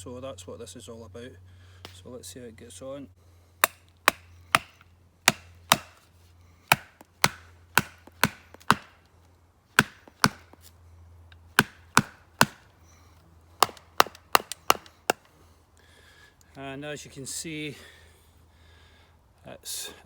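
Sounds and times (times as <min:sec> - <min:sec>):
baton knocking on knife spine: 0:03.6 - 0:06.0, 0:06.7 - 0:09.0, 0:09.8 - 0:10.6, 0:11.6 - 0:12.6
wood splitting: 0:03.6 - 0:06.1, 0:06.7 - 0:09.1, 0:09.7 - 0:10.7, 0:11.5 - 0:12.8, 0:13.6 - 0:15.4.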